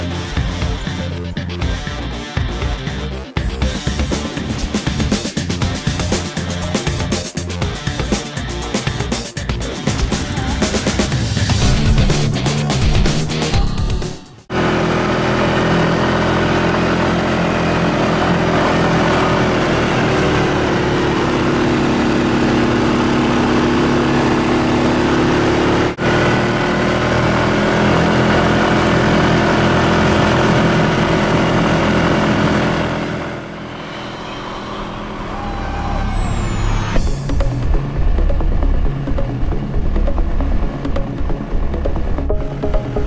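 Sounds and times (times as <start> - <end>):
quad bike engine running: 14.5 - 43.0.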